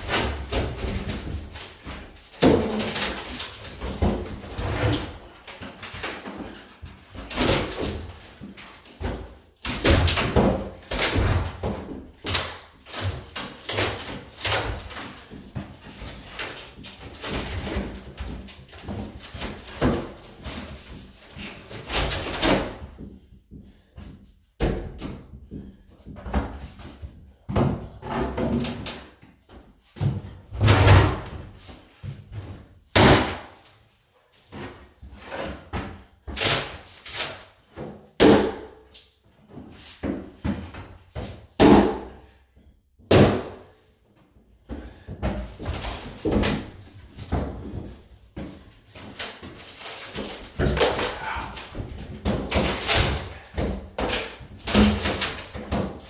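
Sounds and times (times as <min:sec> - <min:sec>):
heavy blows and crashes of wood: 0:00.0 - 0:22.9, 0:30.0 - 0:33.6, 0:40.0 - 0:42.2, 0:43.0 - 0:43.7, 0:44.8 - 0:56.0.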